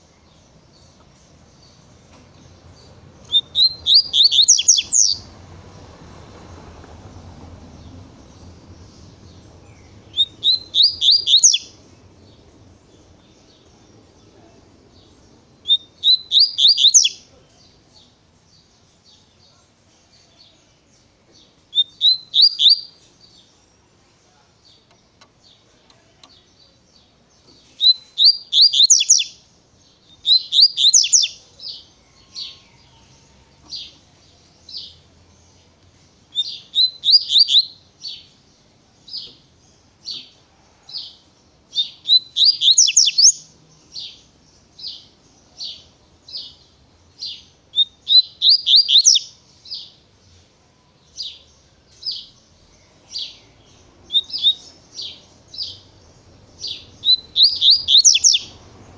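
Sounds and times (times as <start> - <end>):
bird singing high falling notes: 1.6 - 5.4, 7.0 - 17.7, 51.1 - 58.9.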